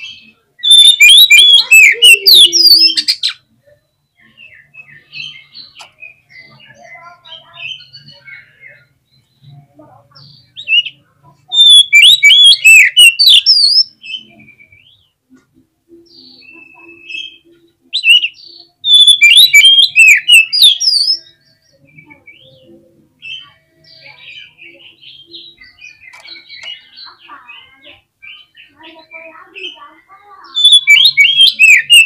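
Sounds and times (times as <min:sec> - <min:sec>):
bird call notes: 0:00.0 - 0:03.3, 0:16.1 - 0:21.2
bird singing whistled phrases: 0:00.2 - 0:03.4, 0:11.5 - 0:14.9, 0:16.0 - 0:22.5, 0:30.4 - 0:32.0.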